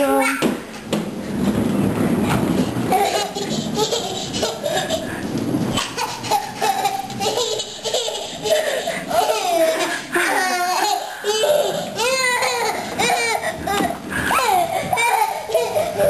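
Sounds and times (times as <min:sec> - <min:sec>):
baby laughing: 0:02.9 - 0:05.2, 0:05.8 - 0:16.0.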